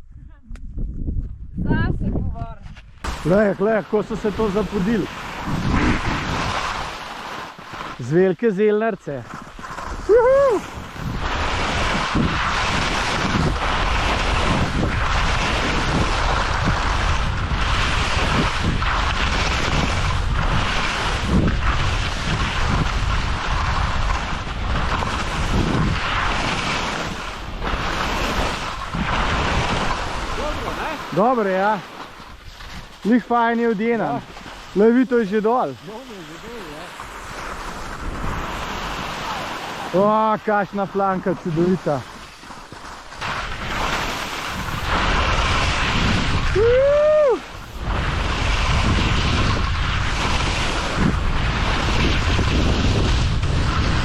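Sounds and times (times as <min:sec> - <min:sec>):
wind buffeting microphone: 0:00.0 - 0:07.3, 0:09.2 - 0:54.0
skis hissing on snow: 0:03.0 - 0:54.0
person shouting a whoop: 0:10.1 - 0:10.6, 0:46.5 - 0:47.5.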